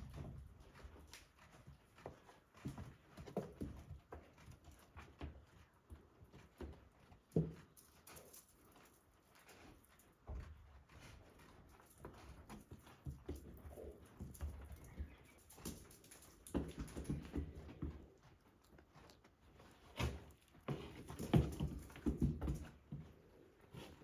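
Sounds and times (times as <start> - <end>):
goats knocking: 20.0 - 22.8.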